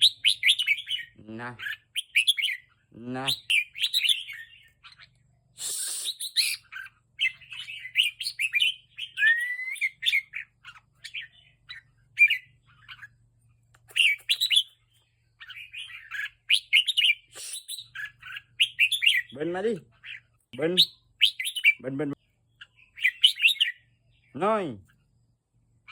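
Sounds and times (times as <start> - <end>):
bird singing chirpy phrases: 0.0 - 25.9
burst of hiss: 5.6 - 6.3.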